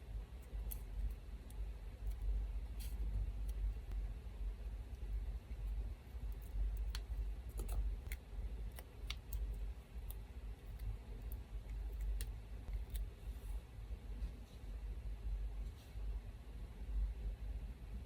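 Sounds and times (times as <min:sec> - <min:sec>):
electric fan humming: 0:00.0 - 0:15.5.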